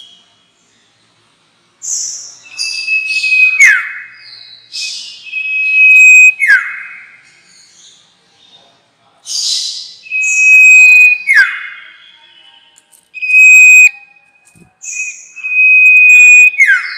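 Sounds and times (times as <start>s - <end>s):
thin held whistle: 5.3s - 6.6s, 10.1s - 11.5s, 13.2s - 16.9s.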